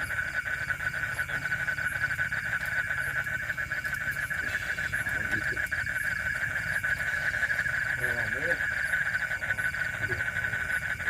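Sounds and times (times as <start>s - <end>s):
frogs trilling chorus: 0.0s - 11.0s.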